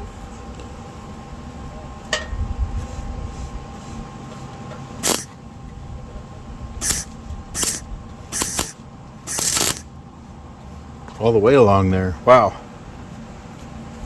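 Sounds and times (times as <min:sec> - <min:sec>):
tack welding crackle: 0:05.0 - 0:05.3, 0:06.8 - 0:07.8, 0:08.4 - 0:09.8
steady welder hum: 0:05.0 - 0:05.4, 0:06.8 - 0:09.9.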